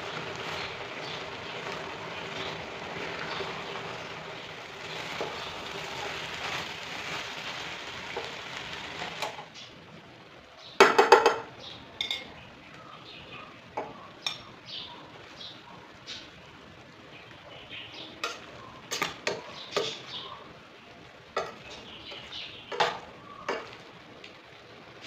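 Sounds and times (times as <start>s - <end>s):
steady hiss: 0.0s - 10.8s
dishes and utensils clinking: 10.8s - 12.3s, 13.8s - 14.5s, 18.2s - 20.1s, 21.4s - 21.8s, 22.7s - 23.8s.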